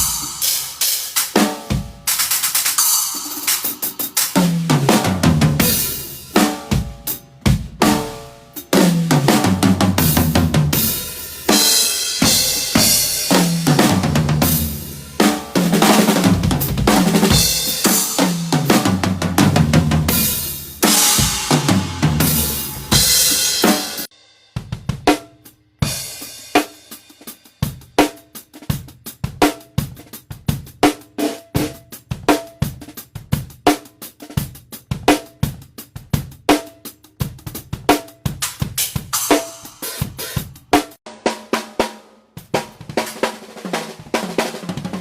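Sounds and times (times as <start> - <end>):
bass drum: 0.0 - 26.2.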